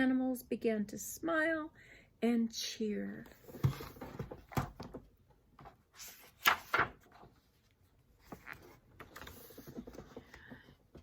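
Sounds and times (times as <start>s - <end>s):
book handling sounds: 5.6s - 11.0s
book page turning: 6.0s - 10.2s.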